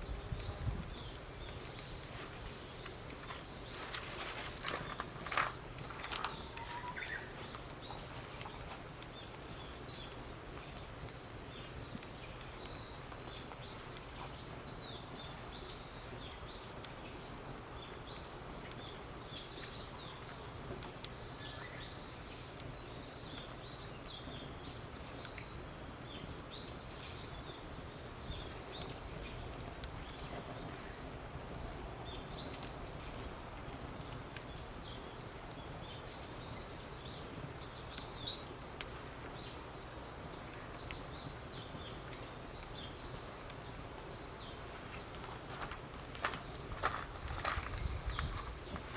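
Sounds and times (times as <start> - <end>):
low background noise: 0.0 - 48.9
bird chirps: 6.2 - 8.0, 9.9 - 10.2.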